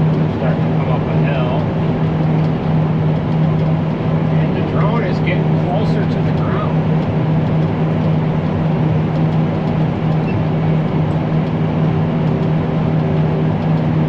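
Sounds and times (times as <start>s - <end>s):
farm machine engine droning: 0.0s - 14.0s.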